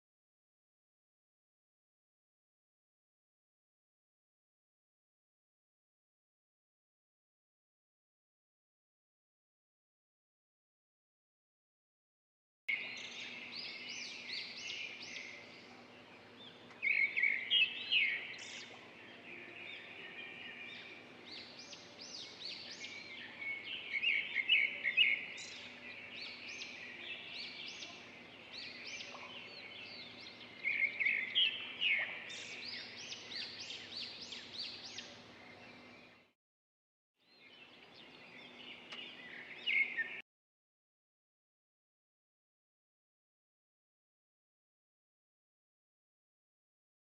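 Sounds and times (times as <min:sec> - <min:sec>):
small birds chirping: 0:12.7 - 0:36.3, 0:37.3 - 0:40.2.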